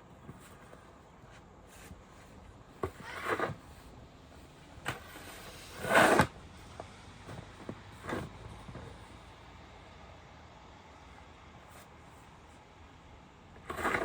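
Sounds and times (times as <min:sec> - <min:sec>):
snow shovel scraping snow: 0:02.9 - 0:03.9, 0:05.0 - 0:06.3, 0:13.6 - 0:14.0.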